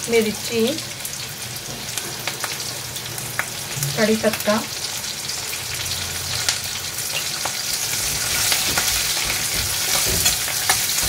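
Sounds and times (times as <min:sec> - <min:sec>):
food sizzling in hot oil: 0:00.0 - 0:11.0
spatula scraping and knocking pan: 0:07.1 - 0:11.0.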